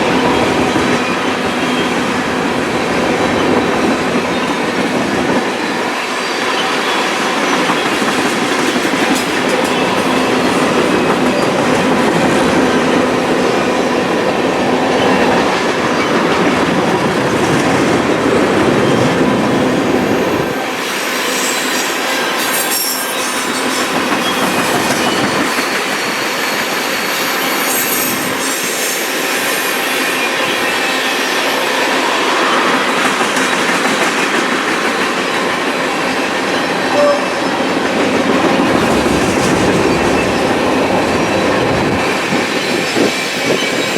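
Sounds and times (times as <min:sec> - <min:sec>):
train wheels clicking over rails: 0:07.2 - 0:13.7, 0:14.6 - 0:43.9
high wheel squeal: 0:20.8 - 0:29.0.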